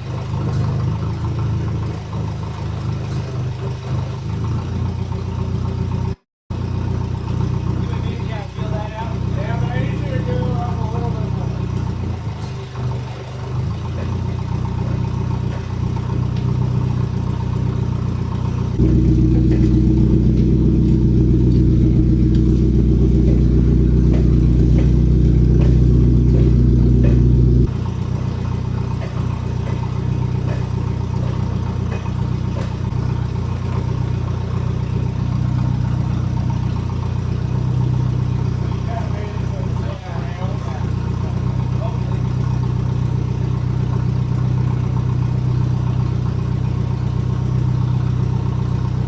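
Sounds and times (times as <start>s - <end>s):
forklift engine running: 0.0s - 49.0s.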